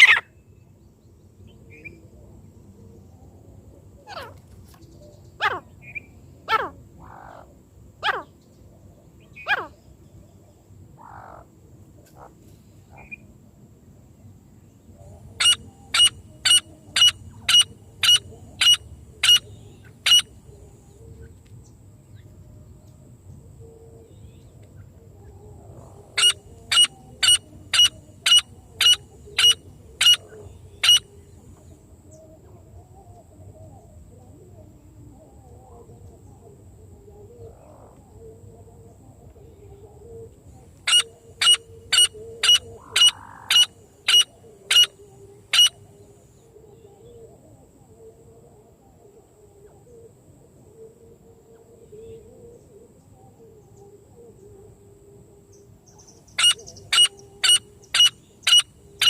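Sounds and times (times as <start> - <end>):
francolin calling: 0.0 - 0.4, 15.0 - 21.0, 25.3 - 31.5, 39.6 - 47.2, 55.5 - 59.0.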